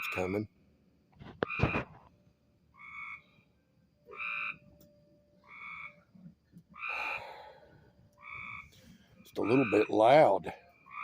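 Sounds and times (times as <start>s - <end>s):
treefrogs nasal honking calls: 0.0s - 0.6s, 2.7s - 4.8s, 5.4s - 6.2s, 6.8s - 7.6s, 8.2s - 11.0s.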